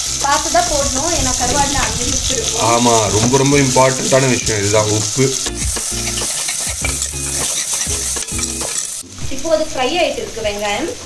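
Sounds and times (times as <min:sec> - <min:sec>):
onions sizzling in hot oil: 0:00.0 - 0:11.0
ladle scraping and clinking pot: 0:05.3 - 0:09.0.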